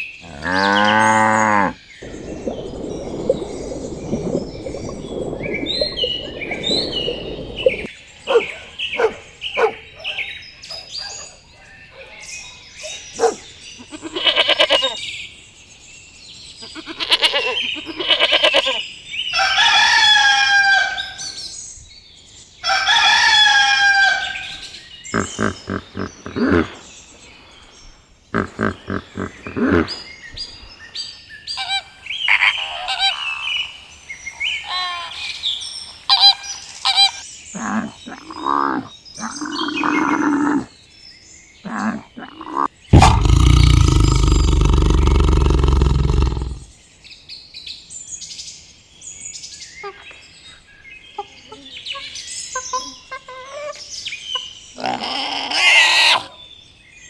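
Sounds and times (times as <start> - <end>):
long drawn-out bird calls: 0.0 - 9.7.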